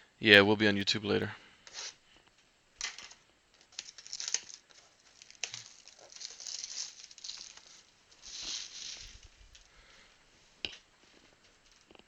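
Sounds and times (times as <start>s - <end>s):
cards being handled: 2.8s - 9.7s
wrappers crinkling and tearing: 3.6s - 9.7s.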